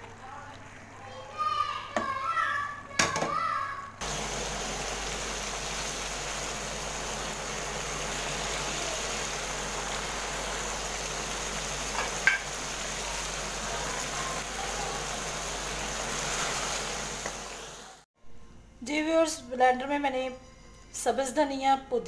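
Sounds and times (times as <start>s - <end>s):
chicken sizzling in oil: 4.0s - 18.1s.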